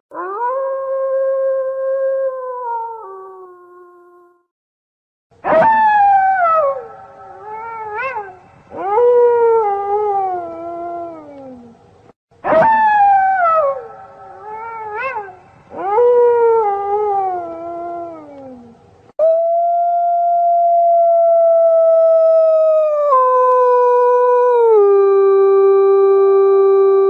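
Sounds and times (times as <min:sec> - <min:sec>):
wolves yelping: 0:05.4 - 0:11.6, 0:12.4 - 0:18.5
wolves howling: 0:05.5 - 0:11.8, 0:12.4 - 0:18.8.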